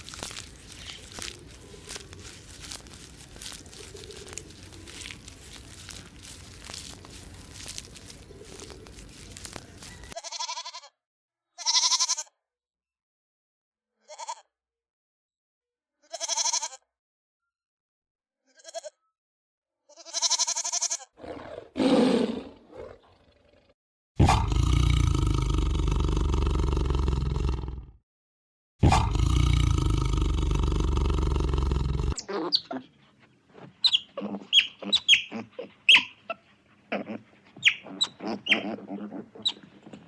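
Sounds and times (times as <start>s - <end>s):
farm animal bleating: 0.0s - 10.9s, 11.6s - 12.2s, 14.1s - 14.4s, 16.0s - 16.8s, 18.5s - 19.0s, 19.9s - 21.1s, 30.4s - 40.0s.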